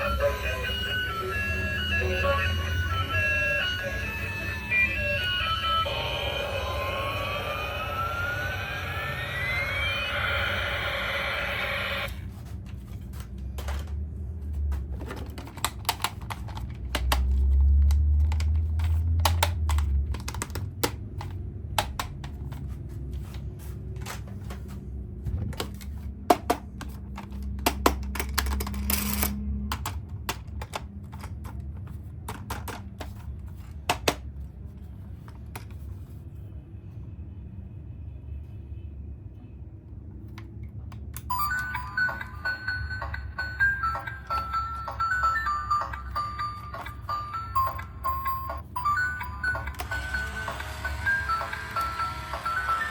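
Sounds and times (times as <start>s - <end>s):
plastic toys and packaging clicking: 12.2s - 36.1s, 40.1s - 52.9s.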